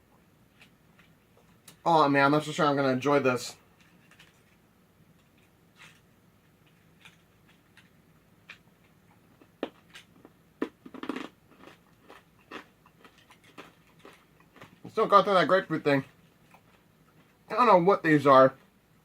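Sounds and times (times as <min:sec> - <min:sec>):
person chewing candy: 0:06.7 - 0:15.1, 0:16.0 - 0:17.4.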